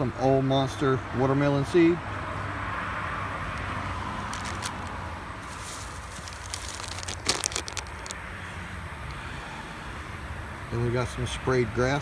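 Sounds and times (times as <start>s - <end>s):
plastic packaging crinkling: 4.3s - 8.2s.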